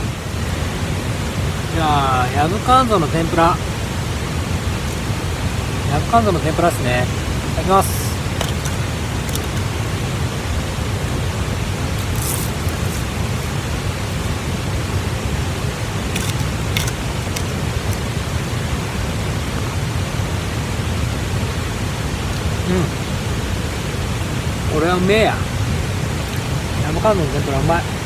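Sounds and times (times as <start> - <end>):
stream water rushing: 0.0 - 28.0
crisp crunches of biting food: 12.0 - 13.6, 16.2 - 18.1.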